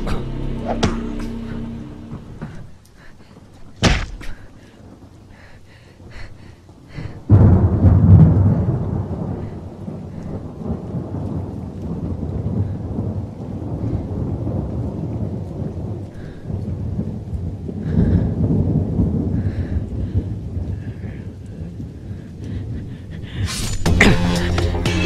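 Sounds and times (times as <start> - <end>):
dramatic film music: 0.0 - 2.7, 23.5 - 25.0
rolling thunder rumble: 0.0 - 23.5
rain: 0.0 - 25.0.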